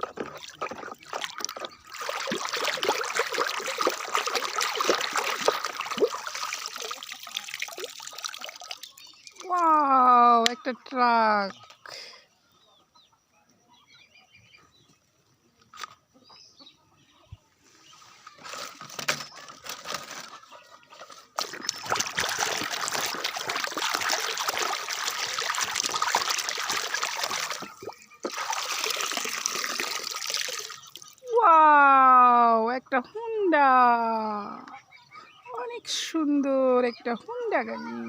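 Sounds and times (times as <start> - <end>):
water pouring and splashing: 0.0 - 9.7, 18.4 - 20.4, 21.0 - 31.3
faint chirps: 32.9 - 36.0.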